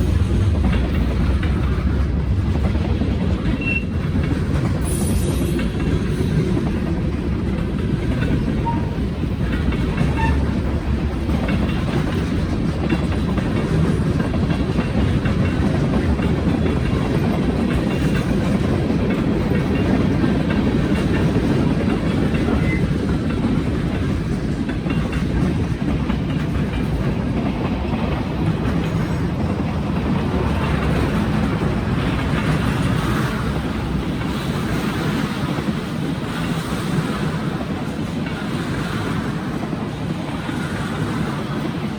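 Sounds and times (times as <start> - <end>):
train cars rumbling on rails: 0.0 - 41.9.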